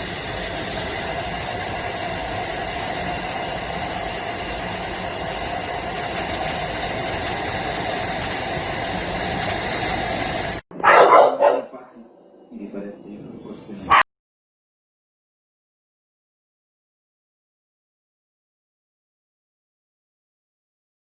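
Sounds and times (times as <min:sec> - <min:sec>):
motor running steadily: 0:00.0 - 0:10.6.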